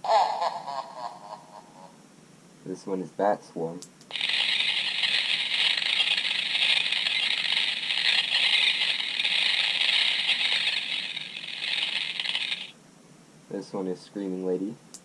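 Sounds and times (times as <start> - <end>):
hissing bat swarm effect: 4.1 - 12.8.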